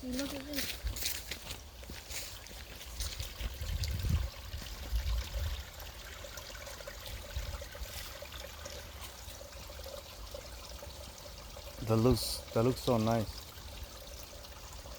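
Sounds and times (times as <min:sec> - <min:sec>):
water trickling and pouring: 0:00.0 - 0:14.9
low rumbling on microphone: 0:03.5 - 0:05.6.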